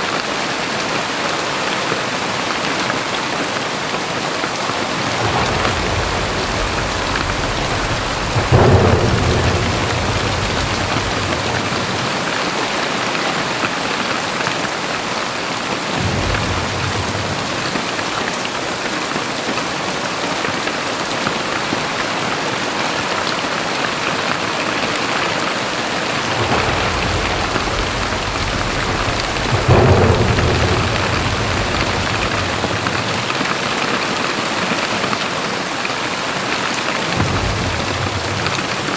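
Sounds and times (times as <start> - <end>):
heavy rain pouring: 0.0 - 38.9
thunder claps and rumbling: 0.0 - 38.9.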